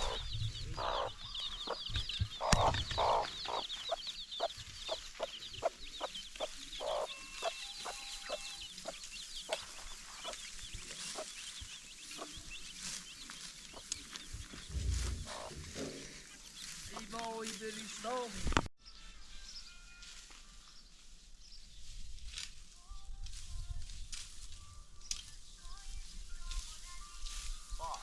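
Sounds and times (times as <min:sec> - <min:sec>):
chickens clucking: 0:00.0 - 0:18.5
small birds chirping: 0:00.0 - 0:19.7, 0:20.6 - 0:28.0.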